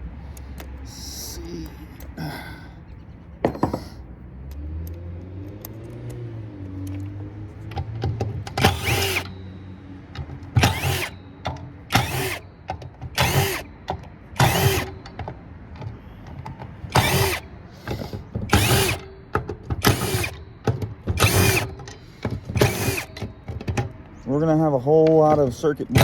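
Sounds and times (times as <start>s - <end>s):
power drill spinning: 8.6s - 9.4s, 10.5s - 11.2s, 11.9s - 12.4s, 13.1s - 13.7s, 14.4s - 14.9s, 16.9s - 19.1s, 19.8s - 20.4s, 21.2s - 21.8s, 22.5s - 23.3s.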